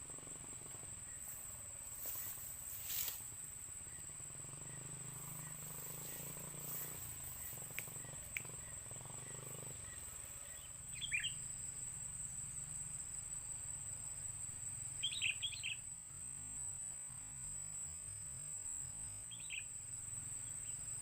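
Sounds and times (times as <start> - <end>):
bird chirping: 3.9 - 11.5, 15.0 - 15.8, 19.3 - 19.7.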